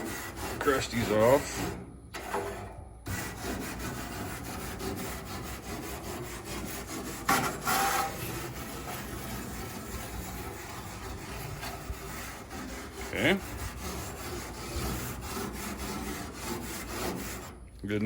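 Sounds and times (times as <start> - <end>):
grill brush scraping grates: 0.0 - 18.0.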